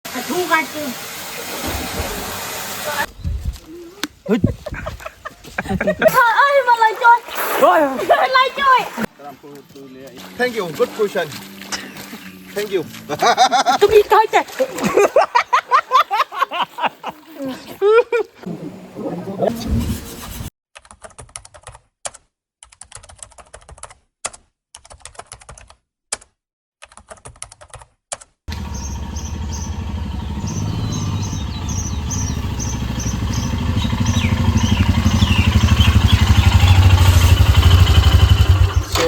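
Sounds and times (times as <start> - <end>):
engine running: 28.5 - 39.0.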